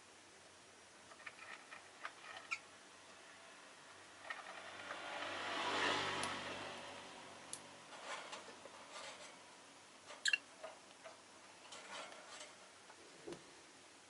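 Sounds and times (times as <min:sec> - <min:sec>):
lovebirds ticking and clicking: 0:01.1 - 0:03.2, 0:10.1 - 0:11.2
passing traffic: 0:03.4 - 0:08.6
bird chirp: 0:10.2 - 0:10.5.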